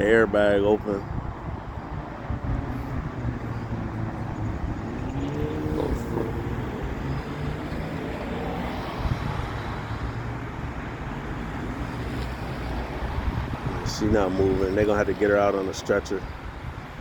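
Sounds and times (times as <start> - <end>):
idling vehicle engines: 0.0 - 17.0.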